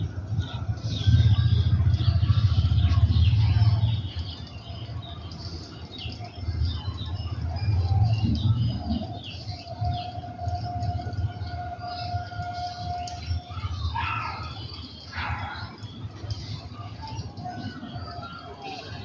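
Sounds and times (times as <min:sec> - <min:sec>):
low rumble: 0:00.0 - 0:05.3
small birds chirping: 0:00.0 - 0:19.0.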